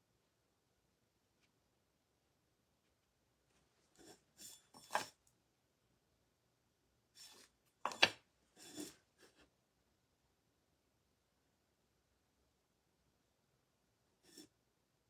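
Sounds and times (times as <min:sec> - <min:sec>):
tools rubbing and scraping: 0:07.2 - 0:09.0.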